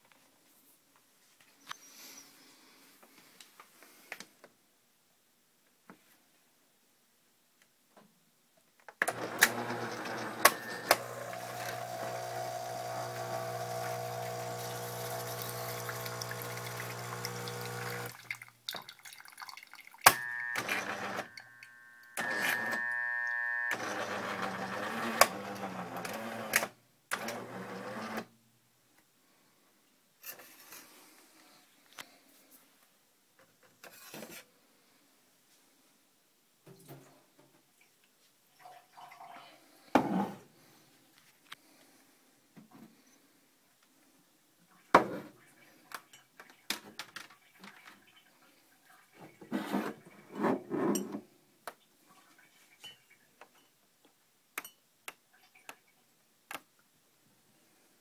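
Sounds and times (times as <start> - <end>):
coffee machine humming: 9.1 - 18.3, 20.1 - 28.2
high steady tone: 20.1 - 23.8.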